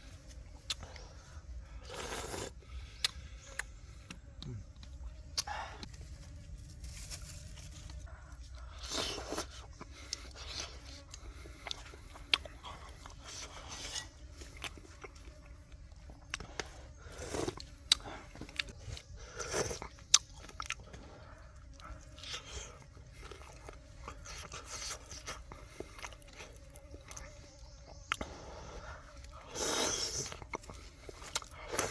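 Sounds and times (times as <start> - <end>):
person chewing crunchy food: 8.0 - 28.3, 28.9 - 31.9.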